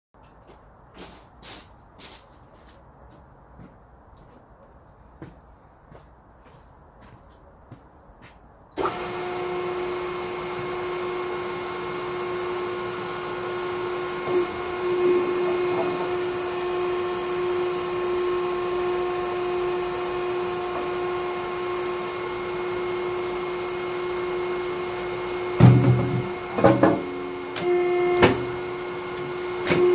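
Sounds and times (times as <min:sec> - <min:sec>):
log splitter motor whining: 0:08.8 - 0:29.9.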